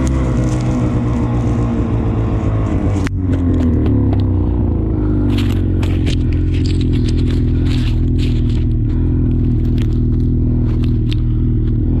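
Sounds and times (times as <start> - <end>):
snowmobile engine running: 0.0 - 12.0
crackling and clicking: 5.3 - 11.8.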